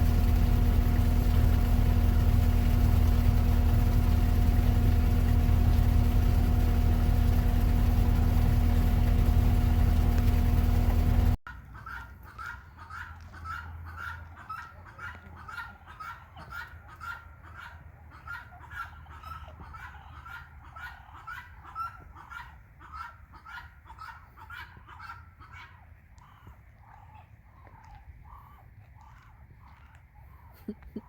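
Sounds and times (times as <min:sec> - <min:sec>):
birds honking calls: 0:00.0 - 0:11.4.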